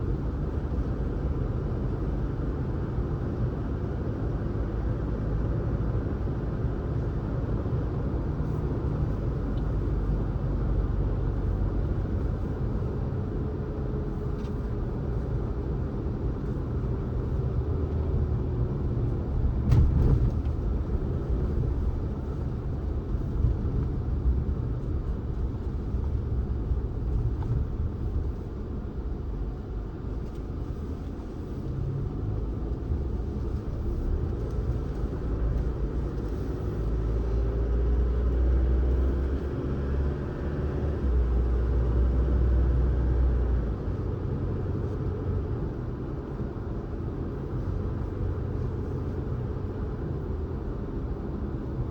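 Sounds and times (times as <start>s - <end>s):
car engine and tyres rumbling: 0.0s - 51.9s.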